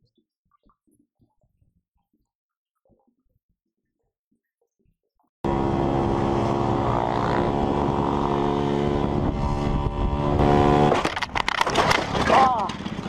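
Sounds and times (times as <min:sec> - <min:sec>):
vehicle engine drone: 0:05.4 - 0:11.7.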